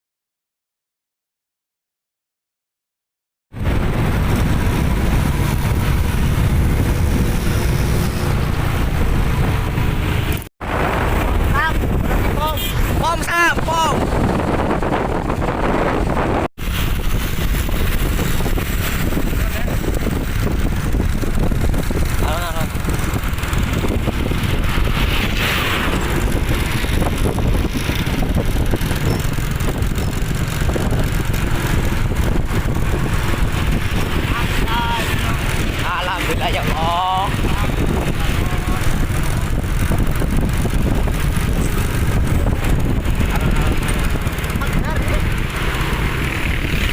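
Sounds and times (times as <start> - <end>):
truck engine and road rumble: 3.5 - 46.9.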